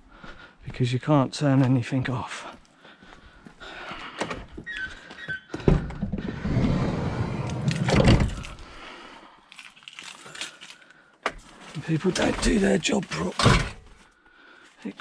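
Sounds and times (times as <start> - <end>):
rumbling scraping noise: 6.1 - 8.7
handling sounds: 9.5 - 13.9.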